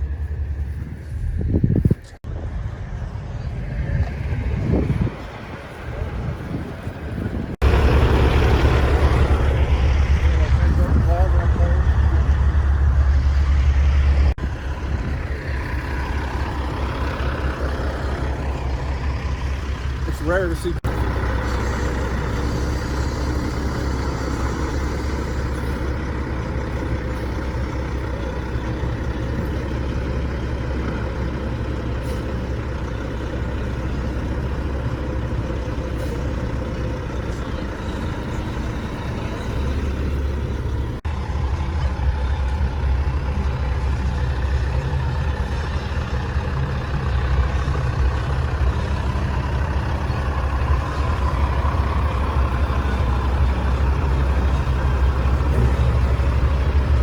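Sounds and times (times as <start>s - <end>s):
diesel truck engine rumbling: 0.0s - 57.0s.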